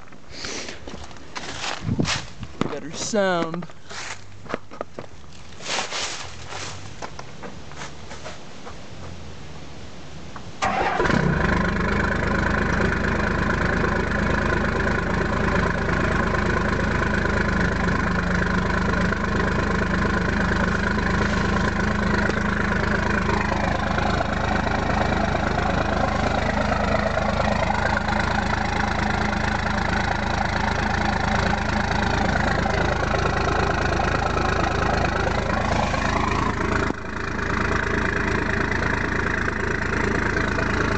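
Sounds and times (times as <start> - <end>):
diesel engine starting and idling: 10.5 - 40.9.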